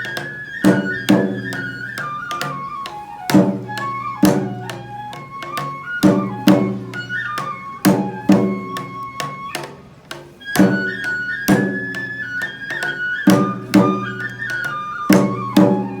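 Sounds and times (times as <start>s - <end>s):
high bamboo flute melody: 0.0s - 16.0s
sharp drum strikes: 3.3s - 7.1s, 7.8s - 9.0s, 10.1s - 12.1s, 13.3s - 14.4s, 15.1s - 16.0s.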